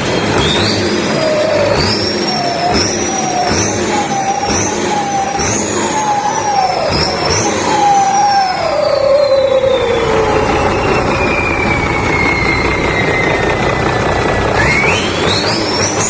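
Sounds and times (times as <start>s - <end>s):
diesel engine running: 0.0s - 16.0s
turbocharger whine: 0.0s - 16.0s.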